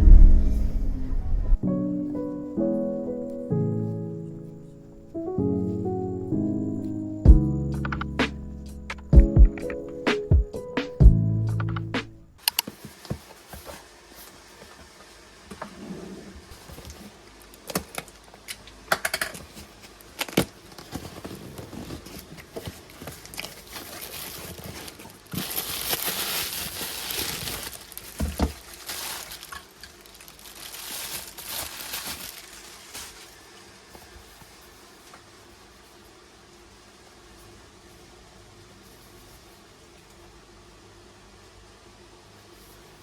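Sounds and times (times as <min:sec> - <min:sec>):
crinkling and rustling: 0:12.4 - 0:40.3.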